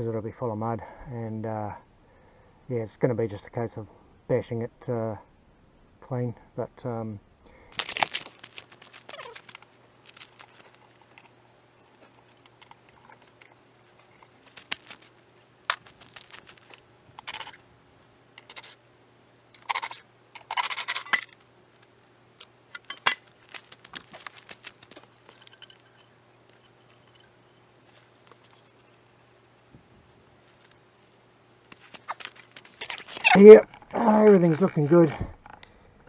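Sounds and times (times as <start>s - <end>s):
faint steady hum: 0.0s - 36.0s
hands scraping and clicking: 7.8s - 17.6s, 23.4s - 27.2s, 31.7s - 33.4s.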